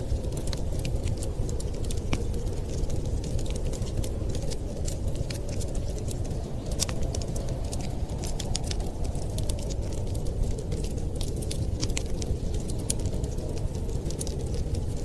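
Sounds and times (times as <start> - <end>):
low rumble of fire: 0.0 - 15.0
wood fire crackling: 0.0 - 15.0.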